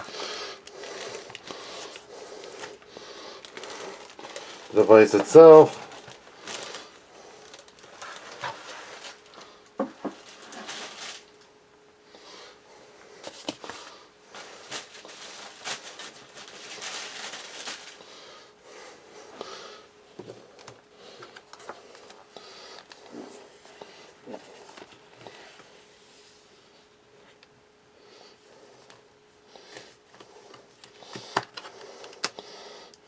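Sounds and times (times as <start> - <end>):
plastic packaging crinkling: 0.0 - 11.5, 13.2 - 18.1
faint steady hum: 0.0 - 33.0.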